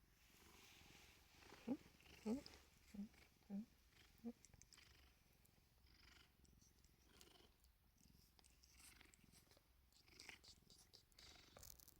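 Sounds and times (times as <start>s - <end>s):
soft rustles: 0.0s - 3.4s
cat purring: 0.2s - 11.9s.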